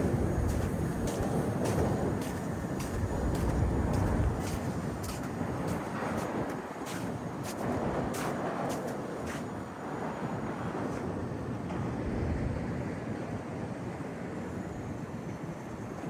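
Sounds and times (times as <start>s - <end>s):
city background rumble: 0.0s - 16.0s.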